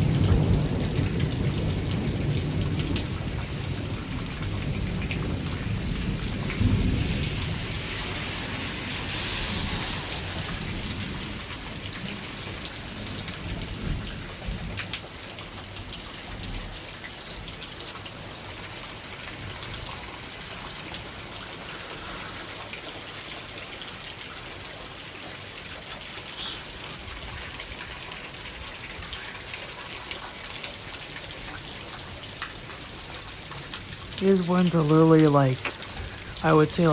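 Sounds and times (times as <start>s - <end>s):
low thunder rumble: 0.0s - 14.8s
rain falling steadily: 0.0s - 36.9s.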